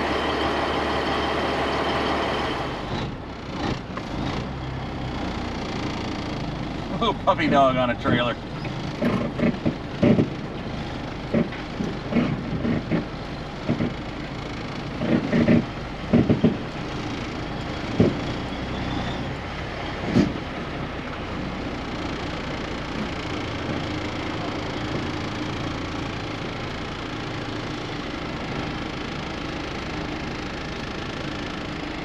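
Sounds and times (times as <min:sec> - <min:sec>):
truck engine idling: 0:00.0 - 0:32.0
short knocks and thumps: 0:08.6 - 0:10.5, 0:11.3 - 0:14.1, 0:15.0 - 0:16.7, 0:17.9 - 0:18.4.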